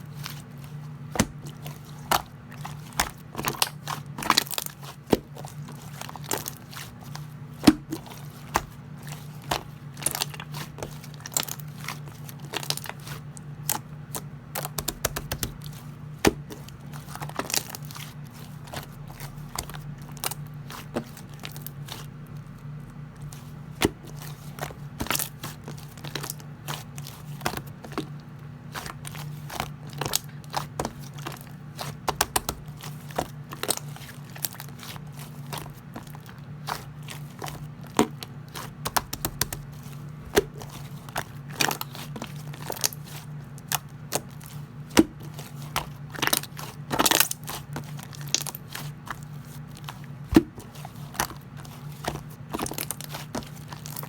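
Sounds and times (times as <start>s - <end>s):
slime crackling and popping: 23.9s - 54.0s.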